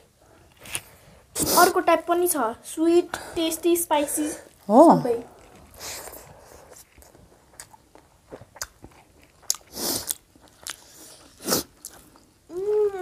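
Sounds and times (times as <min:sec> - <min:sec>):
chewing with wet clicks: 0:05.3 - 0:12.4.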